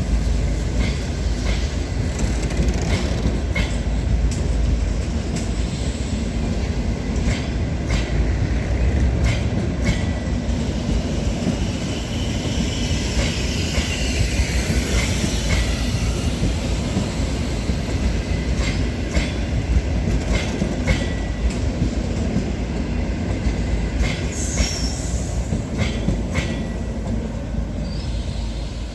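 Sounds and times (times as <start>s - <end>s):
train coaches rumbling: 0.0s - 28.9s
wheels clicking over rail joints: 0.3s - 5.7s
high wheel squeals: 11.5s - 17.8s.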